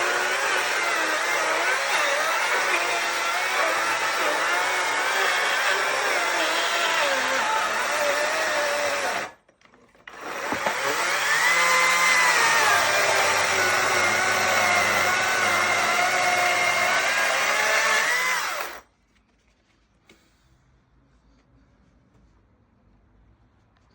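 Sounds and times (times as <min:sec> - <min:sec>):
power saw cutting wood: 0:00.0 - 0:09.4, 0:10.1 - 0:18.8.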